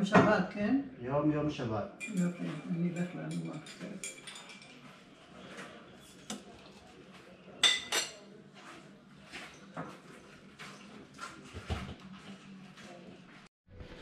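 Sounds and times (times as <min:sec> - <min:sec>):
spoon clinking in cup: 0:02.0 - 0:04.8, 0:07.6 - 0:08.2.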